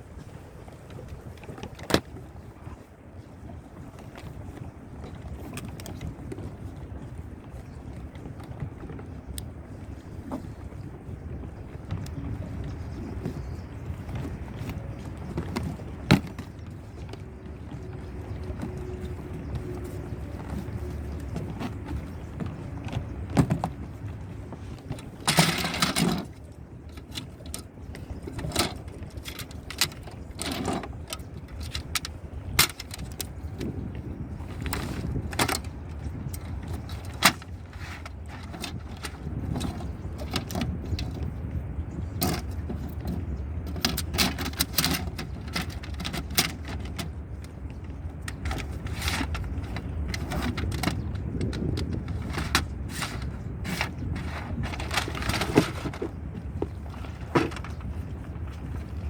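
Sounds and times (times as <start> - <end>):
scraping rustle: 0.2 - 59.0
plastic canoe panels clicking: 11.7 - 33.8, 34.6 - 41.2, 42.2 - 59.0.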